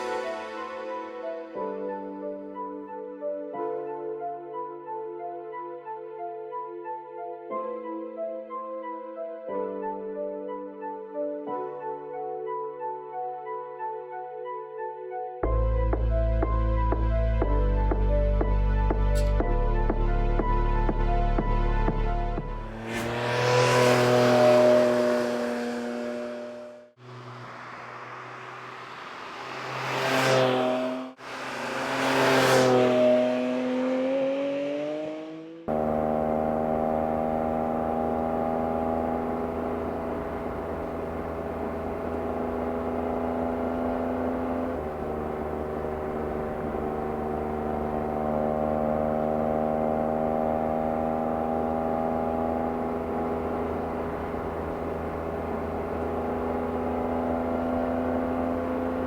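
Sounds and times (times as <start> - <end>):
car passing by: 0.0 - 1.4, 22.4 - 48.8
steady engine drone: 15.5 - 34.3, 35.2 - 59.0.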